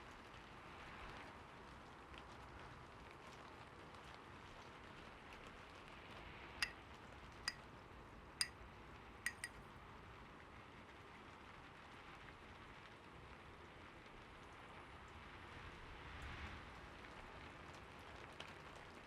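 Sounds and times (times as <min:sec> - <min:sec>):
rain-like patter: 0:00.0 - 0:19.0
bright metallic pings: 0:09.3 - 0:09.5.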